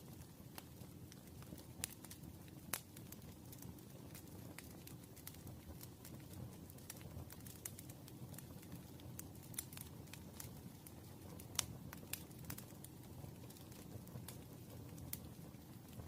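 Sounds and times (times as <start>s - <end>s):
campfire flames rumbling: 0.0s - 16.0s
wood crackling and popping: 0.0s - 16.0s.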